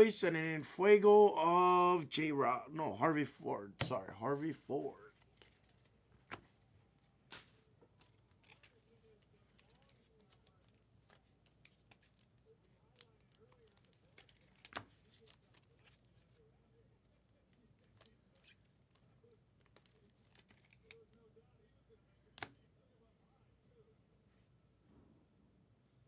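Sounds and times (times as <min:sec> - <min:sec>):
trading card wrappers crinkling: 0:03.9 - 0:16.4, 0:17.5 - 0:21.2.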